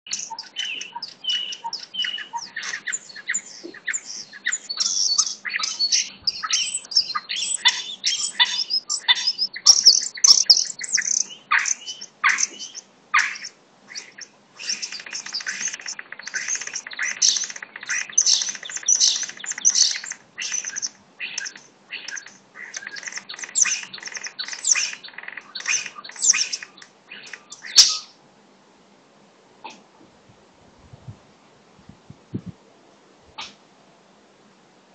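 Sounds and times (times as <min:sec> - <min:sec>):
birds chirping and singing: 0:00.1 - 0:28.2.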